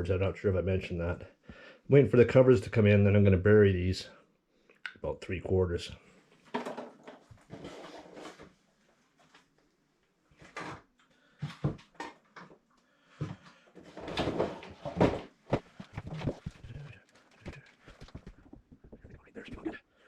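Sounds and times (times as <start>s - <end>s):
objects knocking and clunking: 6.4s - 8.5s, 10.4s - 19.6s
rustling of handled objects: 13.8s - 19.8s.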